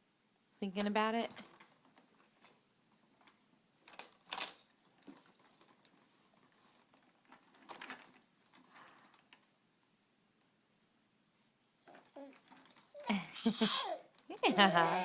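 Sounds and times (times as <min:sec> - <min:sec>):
plastic toys clattering: 0:01.2 - 0:09.5, 0:11.9 - 0:14.8
plastic toys clicking and rattling: 0:03.2 - 0:09.5, 0:11.9 - 0:14.8.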